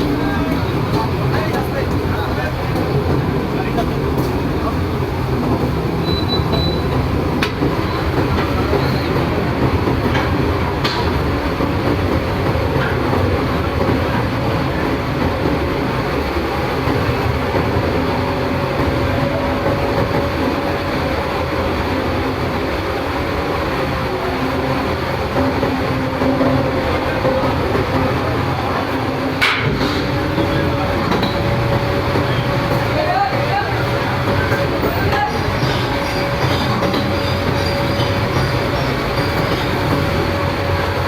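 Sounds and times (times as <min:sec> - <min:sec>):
ferry engine rumble: 0:00.0 - 0:41.0
sharp metallic knocks: 0:29.4 - 0:31.6.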